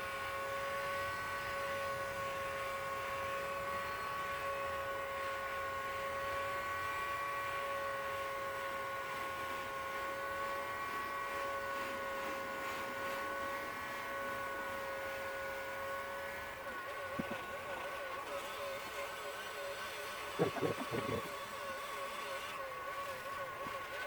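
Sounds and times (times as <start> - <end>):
heat gun running: 0.0 - 24.0.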